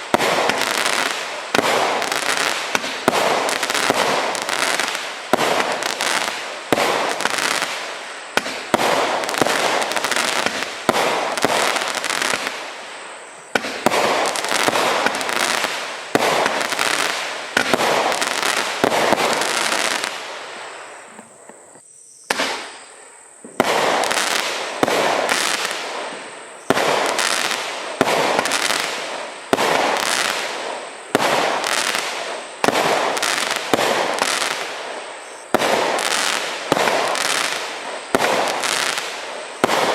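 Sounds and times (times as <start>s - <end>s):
firework bangs: 0.0s - 21.0s, 22.3s - 22.8s, 23.5s - 39.9s.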